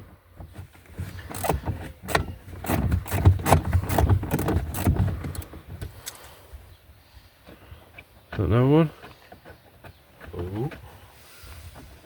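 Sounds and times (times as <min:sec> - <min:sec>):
ratchet clicking: 0:01.3 - 0:05.4.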